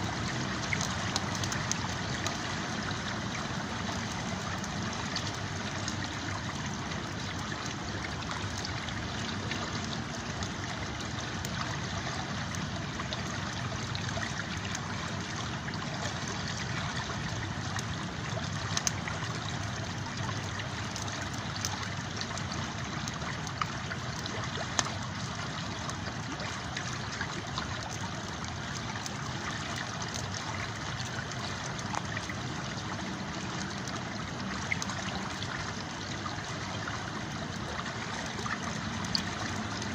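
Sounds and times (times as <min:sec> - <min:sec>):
river water flowing: 0:00.0 - 0:39.9
campfire crackling and popping: 0:00.1 - 0:02.4, 0:18.7 - 0:19.0.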